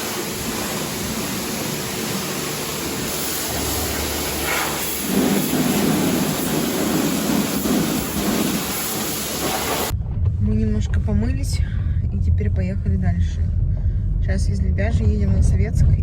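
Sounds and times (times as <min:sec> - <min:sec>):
pressure washer spraying car: 0:00.0 - 0:09.9.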